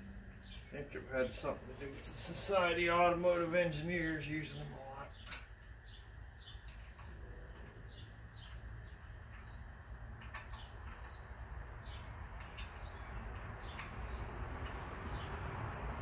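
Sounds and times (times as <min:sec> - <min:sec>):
small bird chirping: 0:04.5 - 0:16.0.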